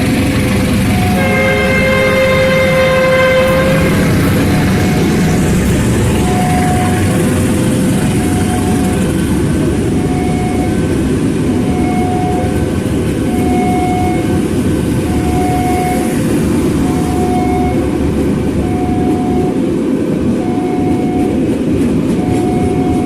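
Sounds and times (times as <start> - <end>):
diesel train engine rumble: 0.0 - 23.0
two-pitch tone: 0.9 - 7.4, 8.0 - 9.2, 9.9 - 12.7, 13.3 - 14.4.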